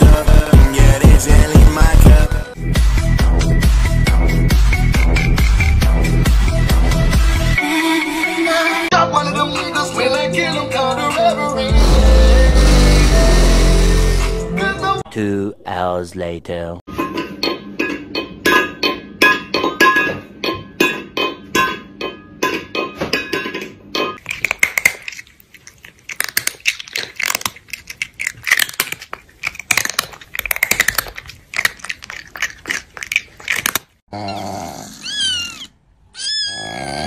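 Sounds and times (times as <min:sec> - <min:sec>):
metal food bowls clanking: 0:16.9 - 0:24.6.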